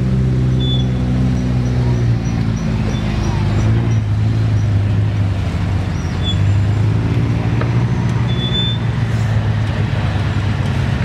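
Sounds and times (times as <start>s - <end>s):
engine running at low revs: 0.0s - 11.0s.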